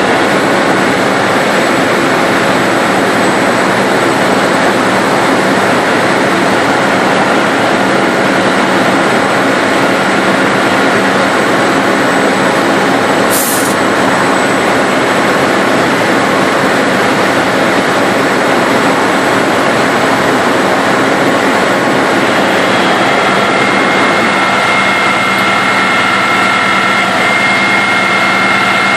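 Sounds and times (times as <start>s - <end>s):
diesel truck engine running: 0.0s - 28.9s
high whine: 0.0s - 28.9s
short hiss: 13.3s - 13.8s.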